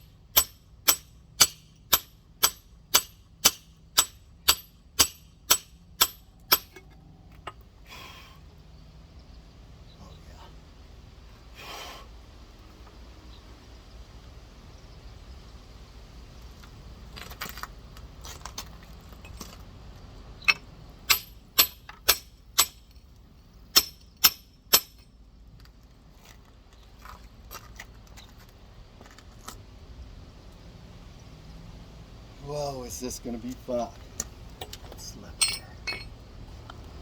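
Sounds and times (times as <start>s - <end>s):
rock hammer striking stone: 0.4s - 6.7s, 23.8s - 25.0s.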